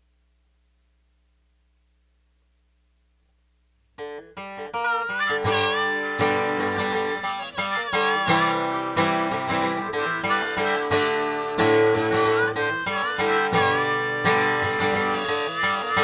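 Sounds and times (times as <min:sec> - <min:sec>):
acoustic guitar: 0:04.0 - 0:16.0
harmonica bending notes: 0:04.0 - 0:16.0.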